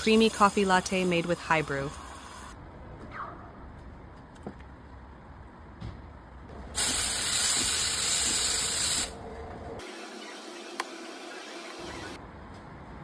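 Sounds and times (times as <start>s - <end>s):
espresso steam wand hissing: 6.8s - 9.1s.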